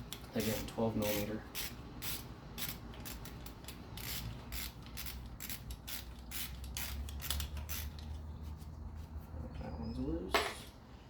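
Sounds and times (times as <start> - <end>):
socket ratchet clicking: 1.6 - 8.1.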